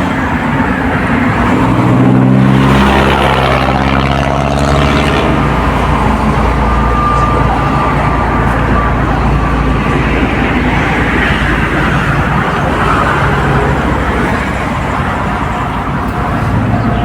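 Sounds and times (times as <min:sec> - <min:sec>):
road traffic noise: 0:00.0 - 0:17.0
vehicle passing: 0:00.0 - 0:17.0.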